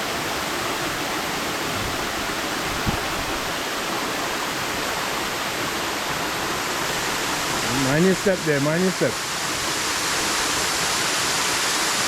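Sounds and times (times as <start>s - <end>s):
waterfall rushing: 0.0s - 12.0s
brief low thump: 2.7s - 3.4s.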